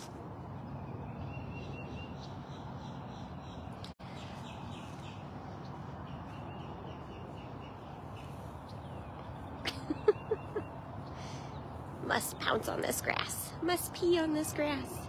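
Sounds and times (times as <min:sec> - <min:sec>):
steady low outdoor rush: 0:00.0 - 0:15.0.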